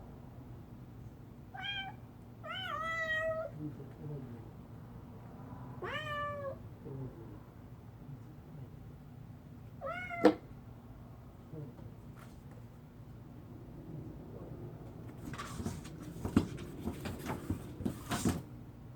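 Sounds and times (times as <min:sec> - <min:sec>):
cat meowing: 0:01.5 - 0:03.5, 0:05.8 - 0:06.6, 0:09.8 - 0:10.4.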